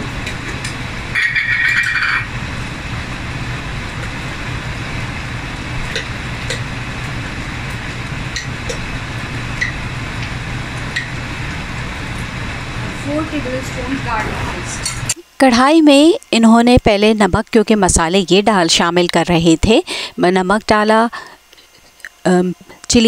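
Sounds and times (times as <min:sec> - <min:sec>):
steady low hum: 0:00.0 - 0:23.0
chicken sizzling in oil: 0:00.7 - 0:15.1.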